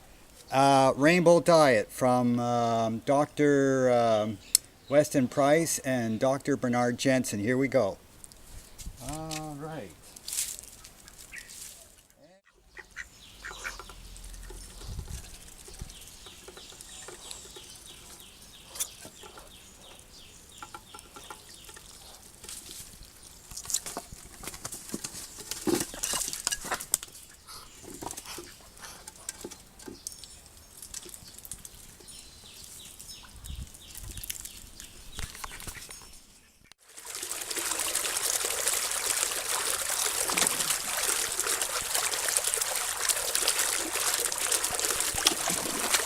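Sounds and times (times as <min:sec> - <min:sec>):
ducks pecking and dabbling: 0:10.0 - 0:36.1, 0:36.8 - 0:46.0.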